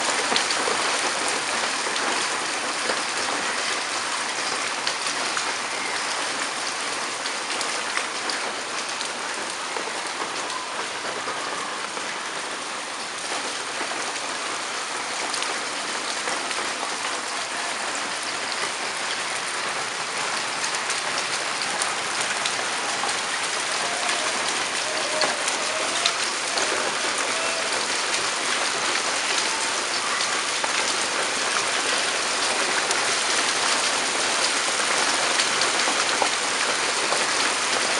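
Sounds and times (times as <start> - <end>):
hailstones pattering: 15.6 - 37.9.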